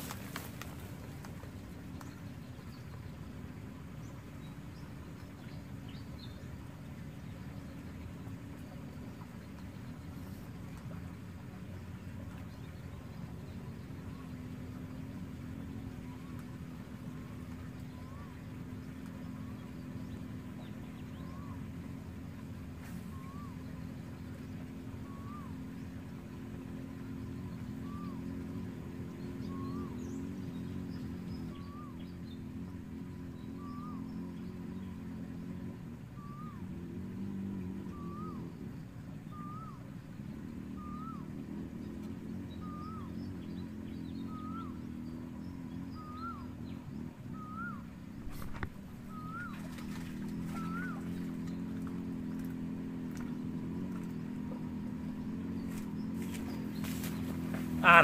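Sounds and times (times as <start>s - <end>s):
boat motor humming: 0.0s - 58.0s
bird call rising and falling: 37.9s - 38.6s, 39.2s - 41.5s, 44.1s - 58.0s
bird repeating short call: 57.6s - 58.0s.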